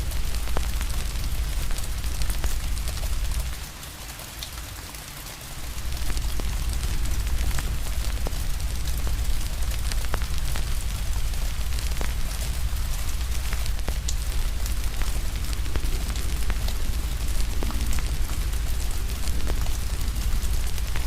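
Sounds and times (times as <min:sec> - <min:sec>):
wood fire crackling: 0:00.0 - 0:04.0, 0:05.5 - 0:21.0
rain hiss: 0:00.0 - 0:21.0
low rumble: 0:05.6 - 0:21.0.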